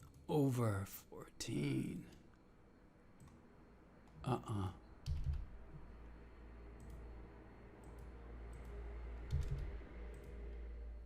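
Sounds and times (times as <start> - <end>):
low steady hum: 0.0 - 11.0
computer mouse clicks: 3.2 - 3.4, 6.8 - 7.0, 7.8 - 10.4.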